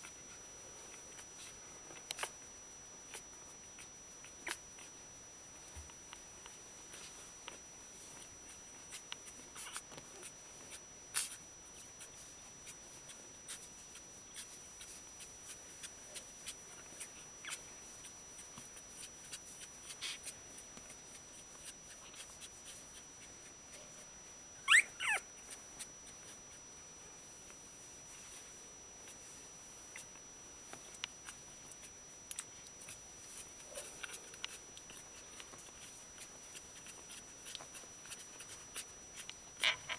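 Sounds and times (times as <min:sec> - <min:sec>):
puppies squeaking: 0:24.6 - 0:25.2
puppy high squeals: 0:24.6 - 0:25.3.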